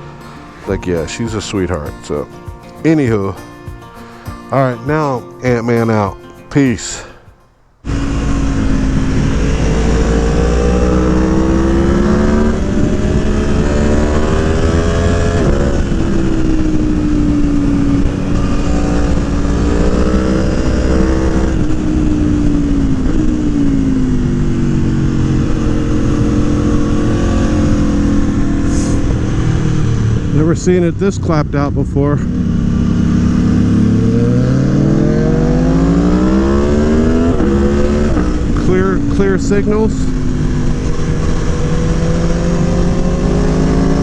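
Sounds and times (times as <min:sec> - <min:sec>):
motorcycle engine accelerating: 0:00.0 - 0:03.8, 0:07.8 - 0:44.0.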